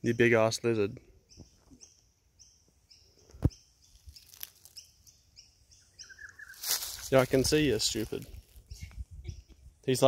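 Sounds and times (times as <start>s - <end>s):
faint high bird chirps: 1.1s - 7.0s, 8.2s - 9.8s.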